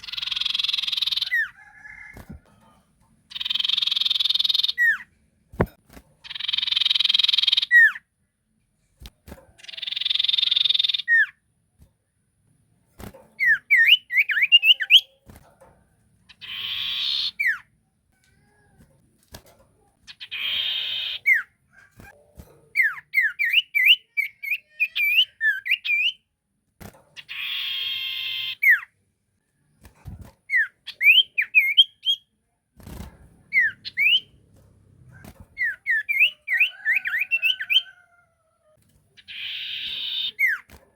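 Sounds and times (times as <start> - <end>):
sharp high bird chirps: 0.0 - 1.9, 3.3 - 5.1, 6.2 - 8.1, 9.6 - 11.4, 16.3 - 17.7, 20.1 - 21.6, 33.5 - 34.4, 39.2 - 40.7.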